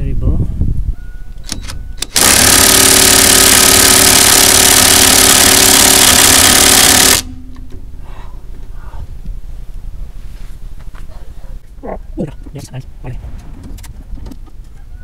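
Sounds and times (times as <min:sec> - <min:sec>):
power tool running: 0:02.0 - 0:07.4.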